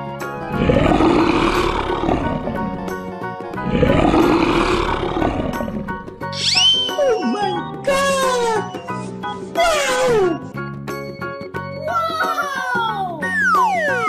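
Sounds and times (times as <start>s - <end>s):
background music: 0.0s - 14.0s
lion roaring: 0.4s - 6.3s.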